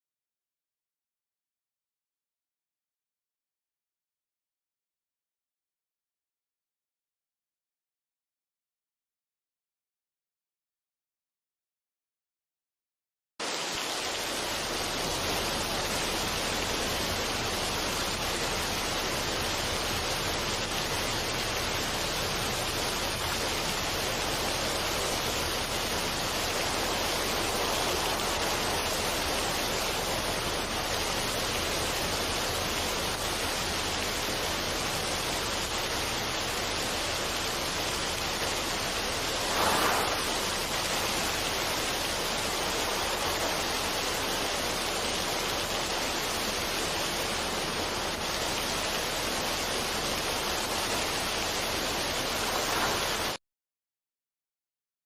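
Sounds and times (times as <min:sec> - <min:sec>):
rushing water: 0:13.4 - 0:53.4.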